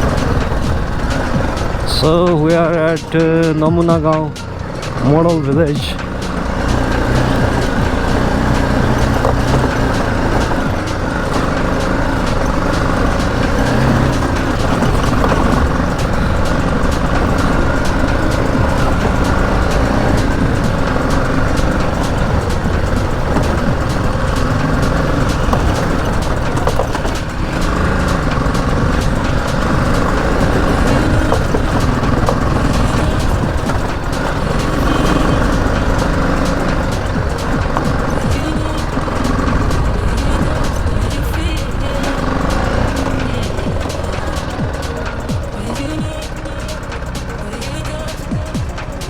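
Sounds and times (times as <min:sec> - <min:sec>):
motorcycle engine running: 0:00.0 - 0:49.0
wind and road noise: 0:00.0 - 0:49.0.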